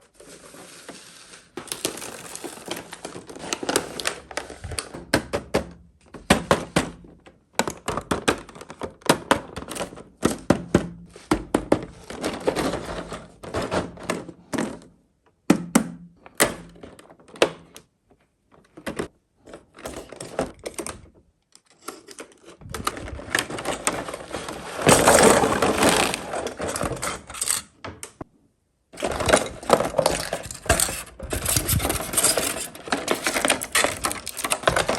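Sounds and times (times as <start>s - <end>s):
packaging rustling: 0.1s - 5.1s, 21.8s - 27.6s, 29.0s - 34.9s.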